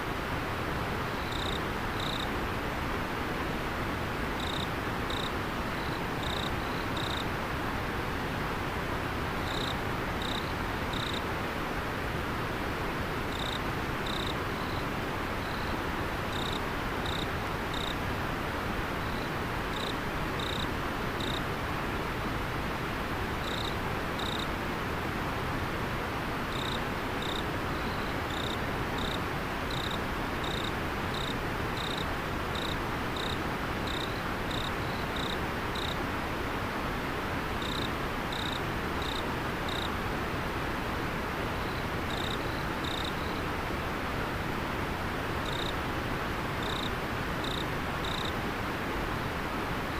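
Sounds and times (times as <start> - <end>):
insect chirping: 1.1 - 2.3, 4.4 - 7.2, 9.4 - 11.2, 13.3 - 14.8, 15.4 - 18.0, 19.0 - 21.4, 23.4 - 24.5, 26.5 - 36.0, 37.6 - 39.9, 41.6 - 43.4, 45.4 - 45.7, 46.6 - 48.3.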